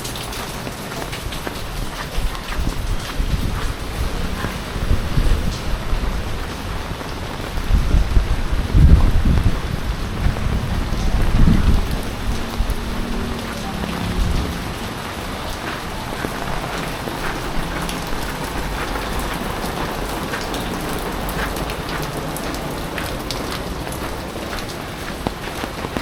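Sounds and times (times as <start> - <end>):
heavy rain falling: 0.0 - 26.0
low rumble: 2.8 - 20.2.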